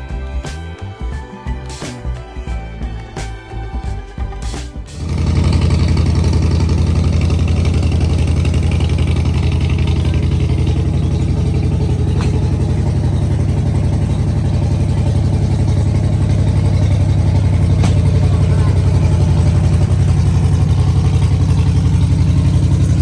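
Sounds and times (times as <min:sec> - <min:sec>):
car engine idling: 0:02.9 - 0:23.0.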